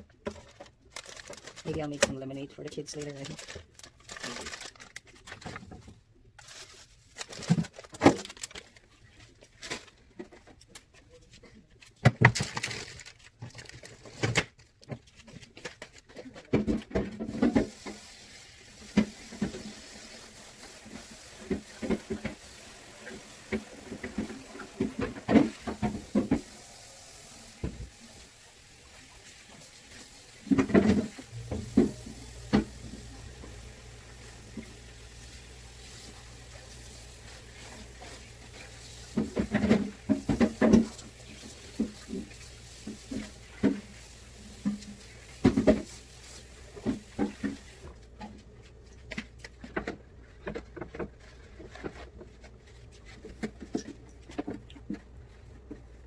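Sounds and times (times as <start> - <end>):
kitchen items knocking and tapping: 16.1 - 18.0, 30.4 - 35.2, 36.5 - 43.9.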